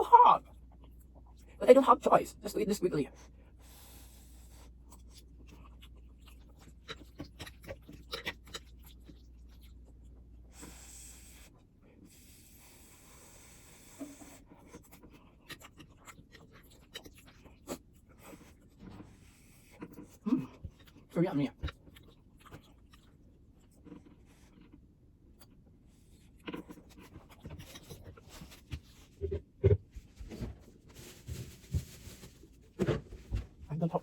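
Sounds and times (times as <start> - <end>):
chewing: 4.7 - 10.8, 13.4 - 29.6.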